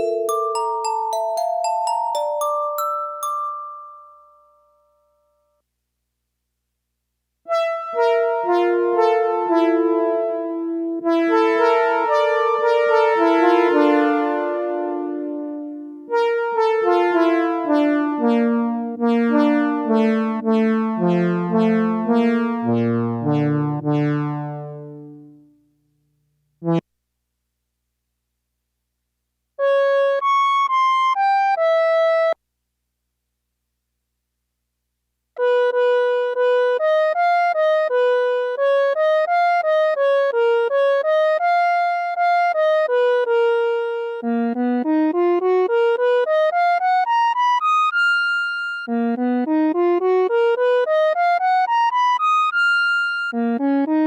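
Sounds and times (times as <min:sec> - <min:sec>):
koto synthesizer melody: 0:00.0 - 0:04.4.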